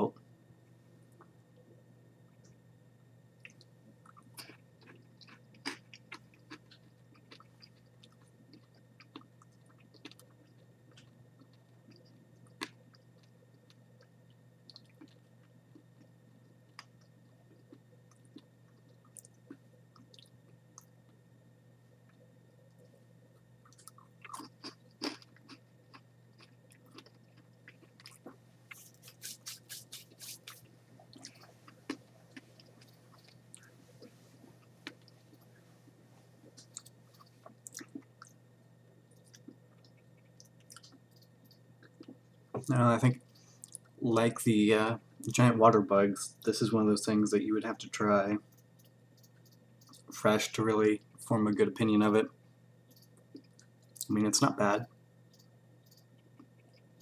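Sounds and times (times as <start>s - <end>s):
crunchy chewing: 3.4s - 21.2s, 22.0s - 44.0s.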